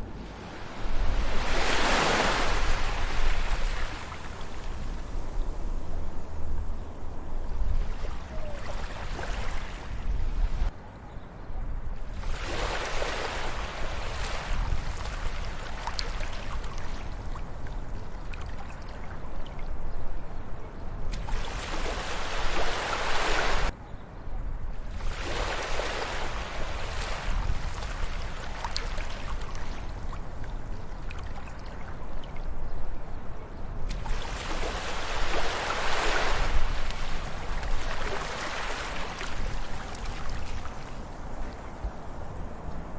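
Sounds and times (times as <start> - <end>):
ocean waves breaking on beach: 0.0 - 5.7, 7.7 - 10.7, 12.1 - 17.5, 21.2 - 23.7, 24.9 - 30.4, 33.9 - 41.4.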